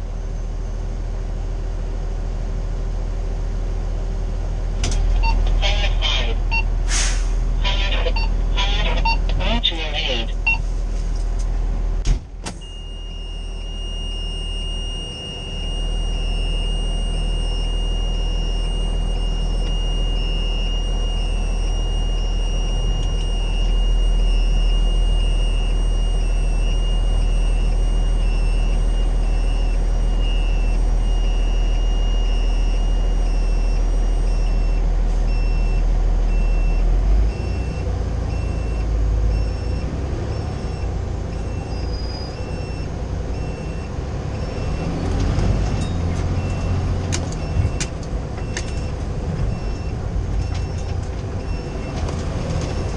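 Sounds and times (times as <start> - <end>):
diesel engine rumbling: 0.0 - 52.9
pulsing beep: 5.1 - 6.7, 7.6 - 10.6, 12.6 - 45.0, 45.8 - 48.9, 49.5 - 50.8, 51.4 - 52.0.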